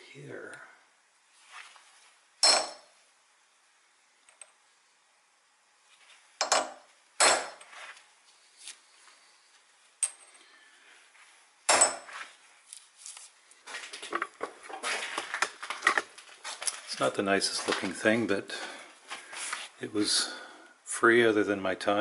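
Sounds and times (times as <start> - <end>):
hammer striking metal punch: 2.4 - 2.9, 6.4 - 7.6.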